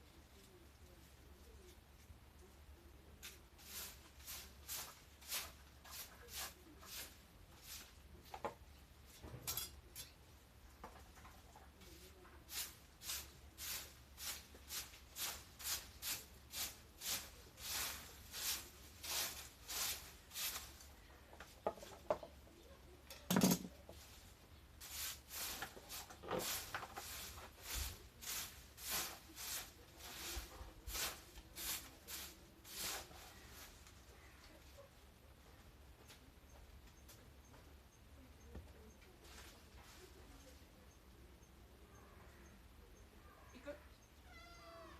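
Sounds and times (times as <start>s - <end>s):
garden shears snipping plants: 3.1s - 10.2s, 11.9s - 22.0s, 23.2s - 34.3s.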